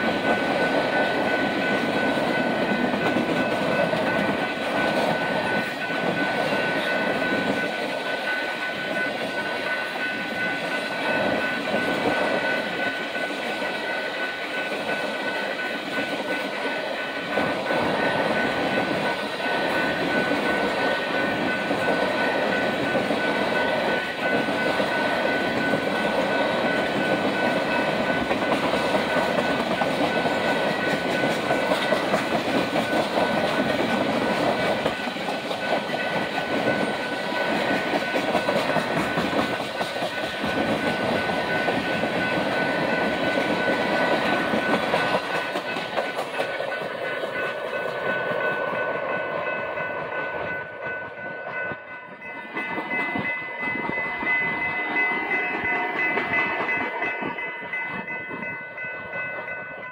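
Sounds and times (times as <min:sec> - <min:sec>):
wheels clacking over rail joints: 0:14.7 - 0:49.5.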